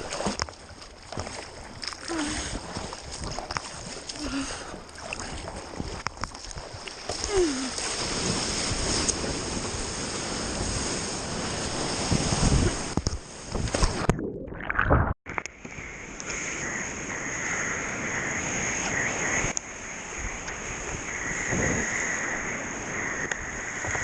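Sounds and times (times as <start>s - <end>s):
sharp water splashes: 0.0s - 10.0s
sea water rushing and splashing: 0.0s - 24.0s.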